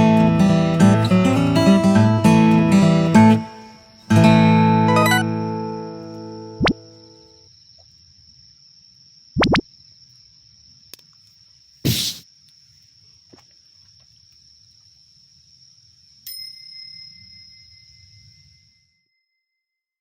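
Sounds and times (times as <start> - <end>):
short loud sounds: 11.8 - 12.2.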